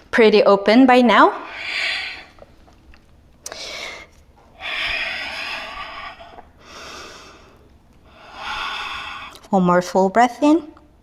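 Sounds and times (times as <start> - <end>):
person breathing slowly: 1.4 - 2.5, 3.5 - 9.5.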